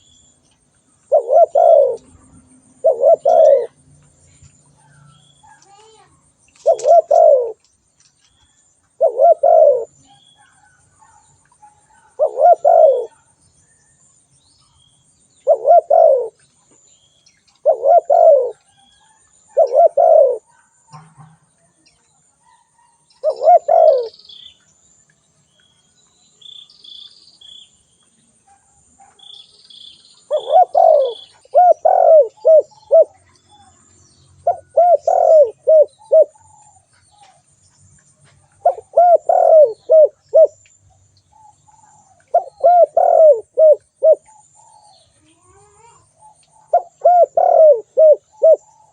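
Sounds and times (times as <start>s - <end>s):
faint high bird chirps: 0.0s - 48.9s
dove cooing: 1.1s - 3.9s, 6.6s - 7.6s, 9.0s - 13.3s, 15.4s - 16.4s, 17.6s - 20.7s, 22.4s - 24.2s, 30.2s - 33.8s, 34.4s - 37.4s, 38.5s - 40.6s, 41.3s - 48.9s.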